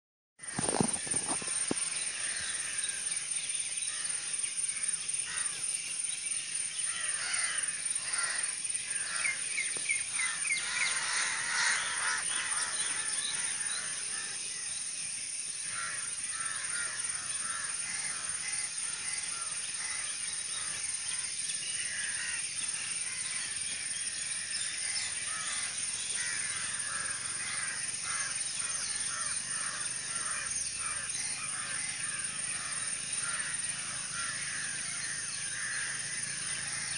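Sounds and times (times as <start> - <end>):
steady high-pitched hiss: 0.4 - 36.9
crows cawing: 5.2 - 5.6, 6.8 - 14.4, 15.6 - 21.2, 21.8 - 23.6, 24.8 - 36.9.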